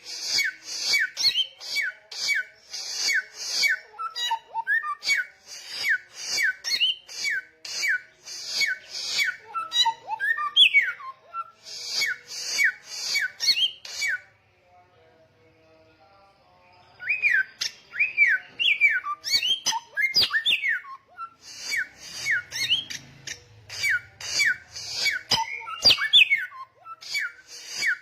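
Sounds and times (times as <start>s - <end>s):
songbird singing: 15.7s - 28.0s.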